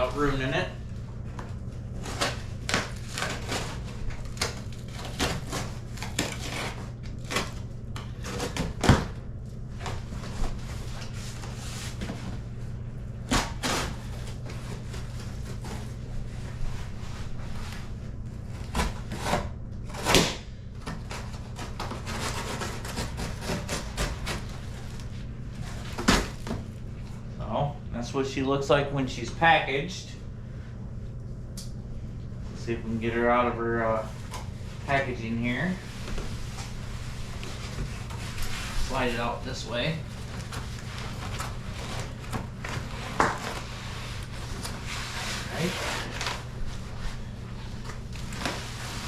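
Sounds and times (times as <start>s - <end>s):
steady low hum: 0.0s - 49.0s
knife cutting cardboard box: 2.0s - 7.6s, 18.6s - 24.6s.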